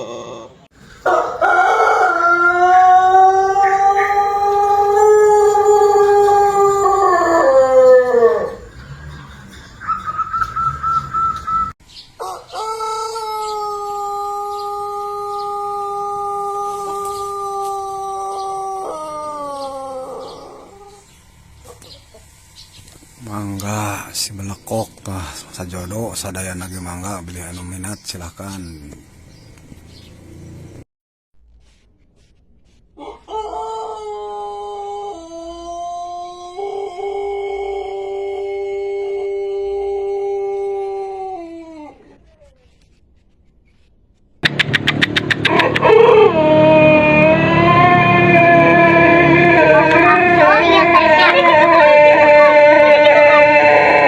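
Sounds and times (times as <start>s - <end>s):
rooster crowing: 0.0s - 22.3s, 33.0s - 42.2s, 45.4s - 54.0s.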